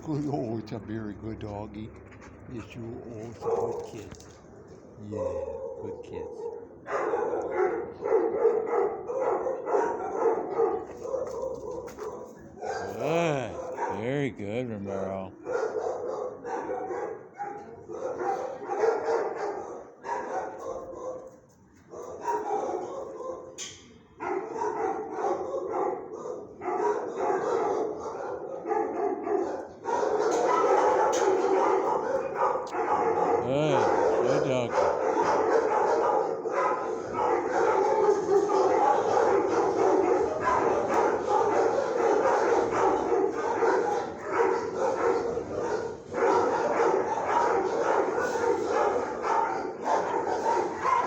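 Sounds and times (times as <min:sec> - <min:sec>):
dogs barking: 0:00.0 - 0:00.7, 0:01.8 - 0:04.4, 0:05.1 - 0:51.0.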